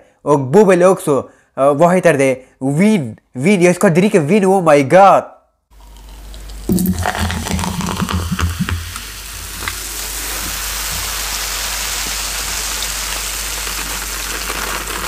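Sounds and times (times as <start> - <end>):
steady hiss: 5.8 - 15.0.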